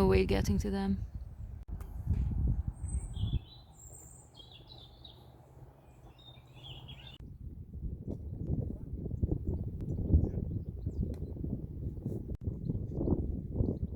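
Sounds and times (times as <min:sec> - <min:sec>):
small songbirds chirping: 0:02.6 - 0:07.2.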